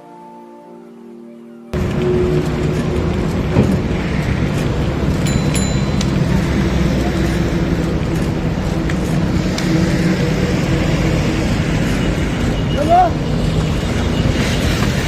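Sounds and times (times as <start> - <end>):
passing traffic: 1.7 - 15.0
wind rushing over microphone: 1.8 - 15.0
faint high ring: 5.2 - 7.4.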